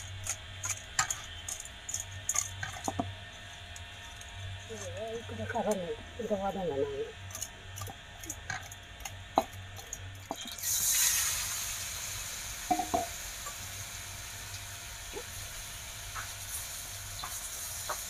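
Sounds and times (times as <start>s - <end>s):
vegetables clinking in steel bowl: 0.0s - 3.1s
vegetables sizzling in wok: 7.2s - 18.0s.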